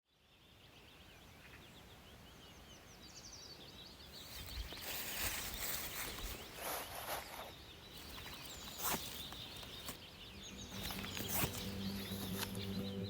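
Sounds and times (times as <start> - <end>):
small birds chirping: 0.1 - 13.0
rustling hiss: 4.1 - 12.8.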